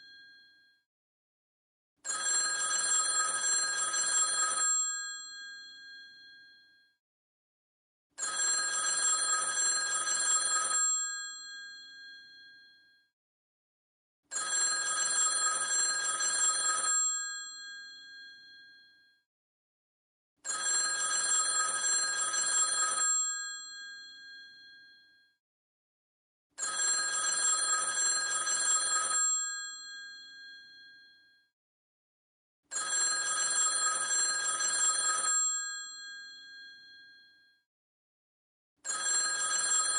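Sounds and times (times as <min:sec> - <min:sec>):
old telephone bell ringing: 0:02.1 - 0:04.9, 0:08.2 - 0:11.1, 0:14.3 - 0:17.0, 0:20.5 - 0:24.7, 0:26.6 - 0:30.5, 0:32.7 - 0:36.0, 0:38.9 - 0:39.9.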